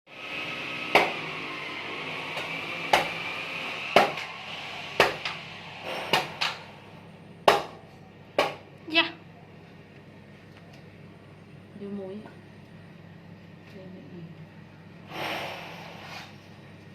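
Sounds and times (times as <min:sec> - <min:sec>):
high-pitched hum: 0:00.2 - 0:08.2
sharp knocks: 0:04.0 - 0:04.3, 0:05.0 - 0:06.6, 0:07.4 - 0:07.8.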